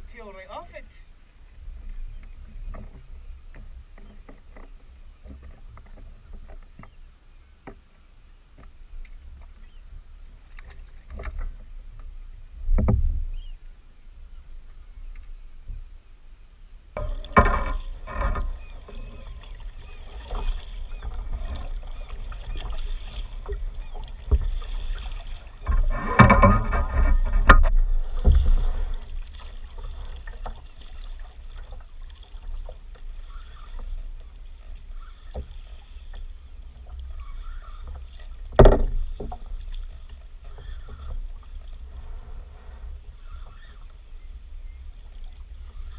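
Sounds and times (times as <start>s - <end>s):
water splashing against kayak: 0.0s - 16.0s, 16.8s - 45.9s
wind rumble on microphone: 8.6s - 32.0s.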